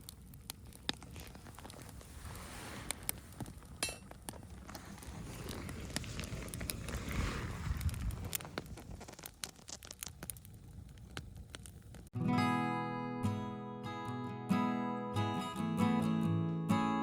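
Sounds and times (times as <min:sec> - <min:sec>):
campfire crackling and popping: 0:00.0 - 0:12.2
strummed acoustic guitar music: 0:12.2 - 0:17.0.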